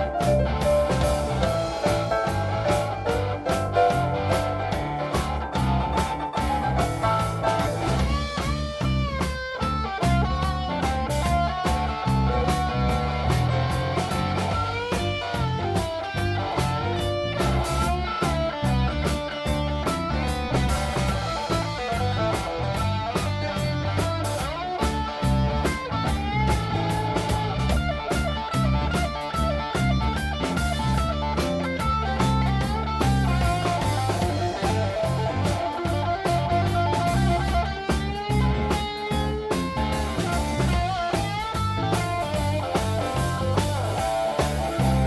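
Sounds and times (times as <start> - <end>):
bass and drum groove: 0.0 - 45.0
electric guitar lines: 0.0 - 45.0.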